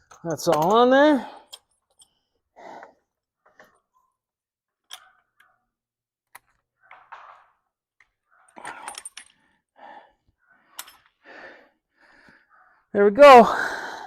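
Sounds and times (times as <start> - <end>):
tools clicking and knocking: 0.0 - 2.1, 4.8 - 5.5, 6.2 - 9.4.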